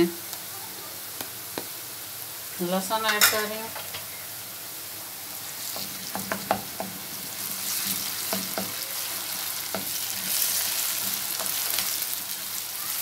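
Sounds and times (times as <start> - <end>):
onions sizzling in hot oil: 0.0 - 13.0
wooden spoon scraping a pan: 7.4 - 12.4.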